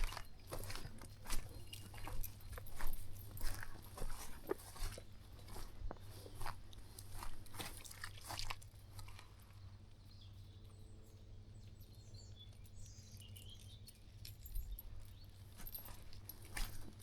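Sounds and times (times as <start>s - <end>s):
footsteps crunching on dry path: 0.0s - 9.9s, 15.4s - 17.0s
low rumble of wind: 0.0s - 17.0s
small birds chirping faintly: 0.0s - 17.0s.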